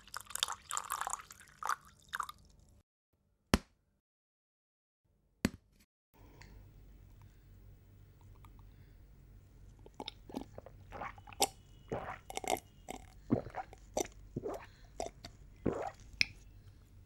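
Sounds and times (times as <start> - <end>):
person gulping a drink: 0.0 - 2.5, 9.8 - 16.4.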